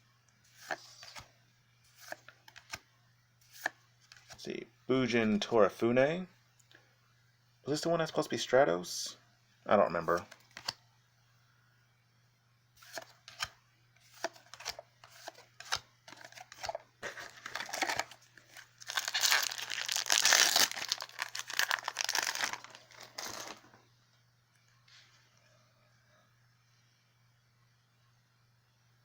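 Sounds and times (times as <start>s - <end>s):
foil wrapper crinkling and tearing: 14.2s - 23.7s.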